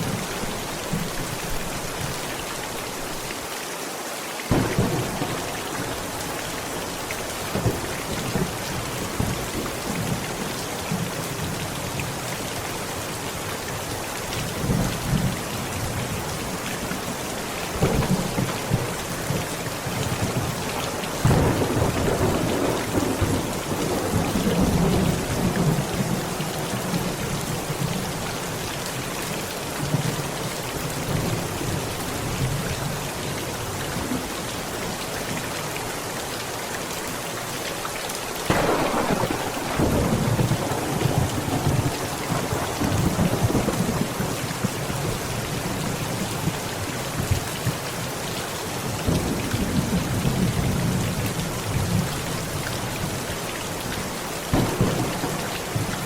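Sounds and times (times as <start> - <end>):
heavy rain: 0.0 - 56.0
thunder rumbling: 4.5 - 10.2, 17.7 - 28.0, 38.5 - 45.7, 54.5 - 56.0.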